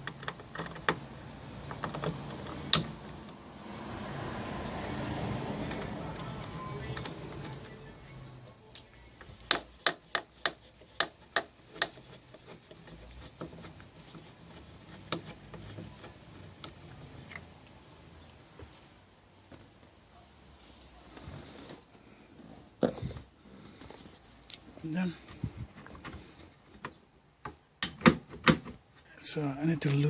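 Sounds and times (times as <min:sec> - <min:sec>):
hand tools clicking and rubbing: 0:08.7 - 0:17.5.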